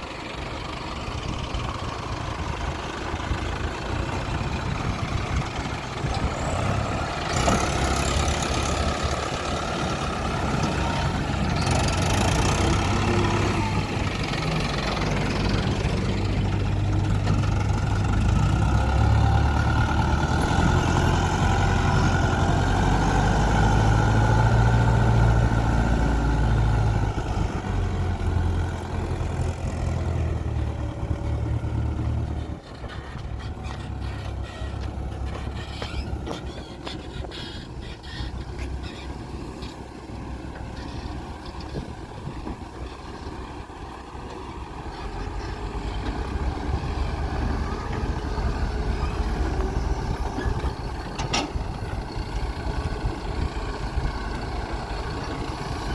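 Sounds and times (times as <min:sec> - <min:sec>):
heavy diesel engines working: 0:00.0 - 0:55.9.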